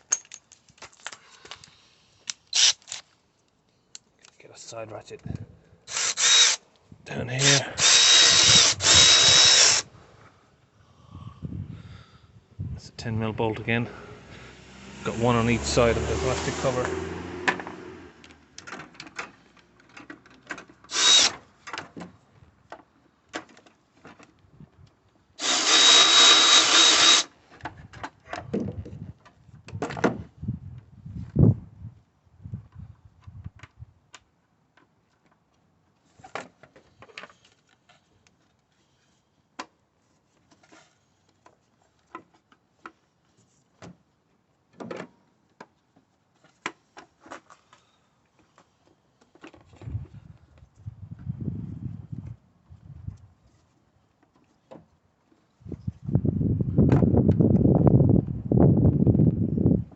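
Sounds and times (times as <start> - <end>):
tools and parts clicking: 0.0 - 3.1
power tool whining: 5.9 - 6.6, 7.4 - 9.9, 20.9 - 21.3, 25.4 - 27.3.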